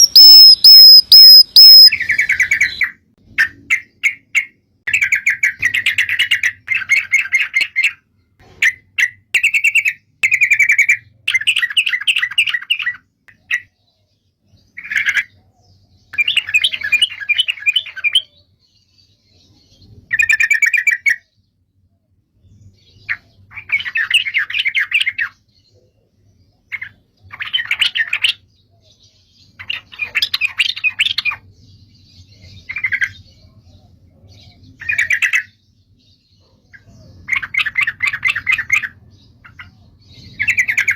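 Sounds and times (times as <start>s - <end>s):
songbird chattering trills: 0.0s - 2.8s.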